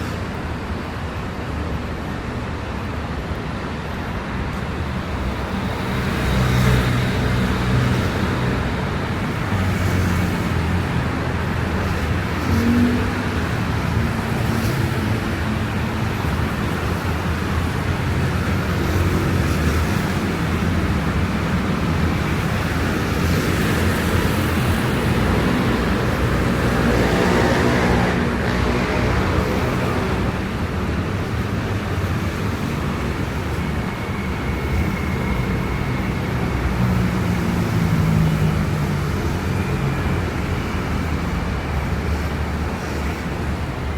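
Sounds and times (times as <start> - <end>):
car engines humming: 0.0 - 43.9
tyre noise on wet road: 4.6 - 43.9.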